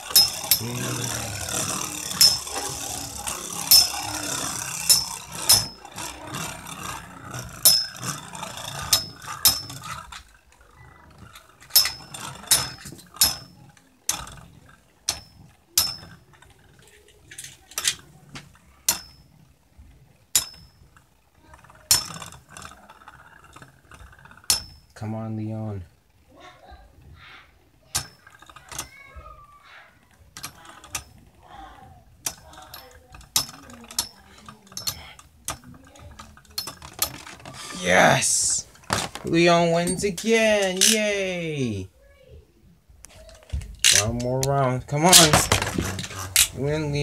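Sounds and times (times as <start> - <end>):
metallic clashes of spinning tops: 0.0 - 19.5, 20.2 - 25.0, 30.4 - 41.8
spinning tops whirring: 0.0 - 47.0.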